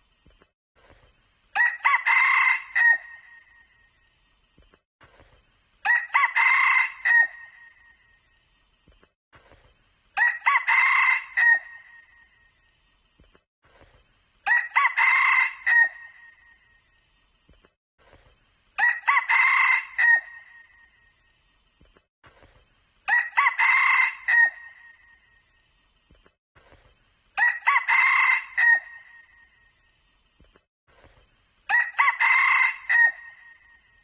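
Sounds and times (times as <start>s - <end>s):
rooster crowing: 1.6s - 3.2s, 5.8s - 7.6s, 10.2s - 12.0s, 14.5s - 16.2s, 18.8s - 20.6s, 23.1s - 24.8s, 27.4s - 29.2s, 31.7s - 33.6s.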